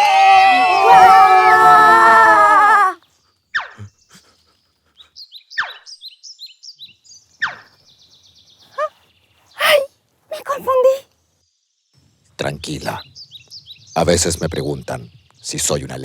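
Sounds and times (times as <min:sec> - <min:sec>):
high bird-like chirps: 0:05.4 - 0:06.2.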